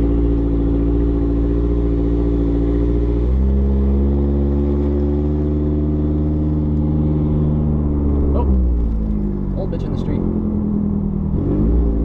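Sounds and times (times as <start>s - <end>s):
car engine under way: 0.0s - 12.0s
people talking: 8.4s - 8.6s, 9.6s - 10.3s.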